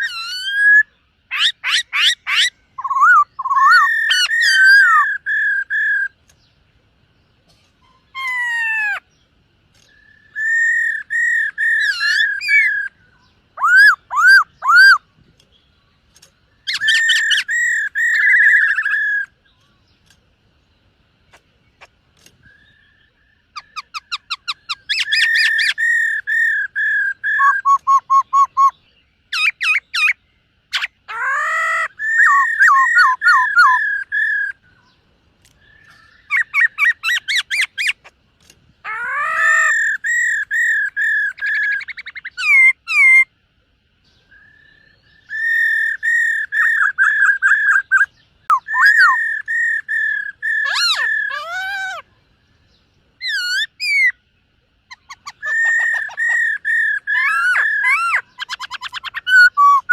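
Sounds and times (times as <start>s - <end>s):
bird whistled notes: 9.8s - 15.0s, 21.8s - 34.6s, 44.3s - 52.0s, 54.9s - 59.9s.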